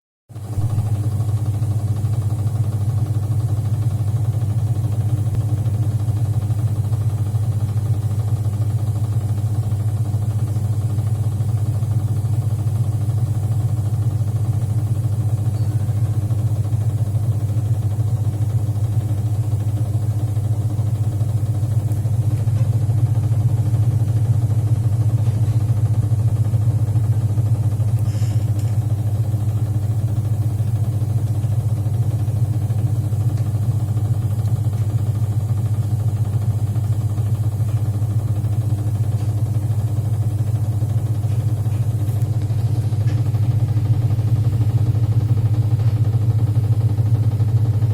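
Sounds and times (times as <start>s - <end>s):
washing machine motor humming: 0.4s - 47.9s.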